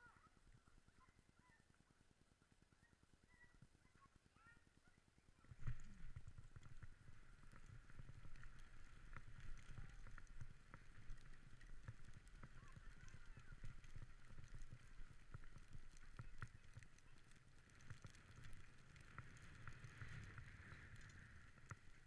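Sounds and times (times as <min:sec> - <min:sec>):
sled runners rumbling on snow: 0:05.4 - 0:22.0.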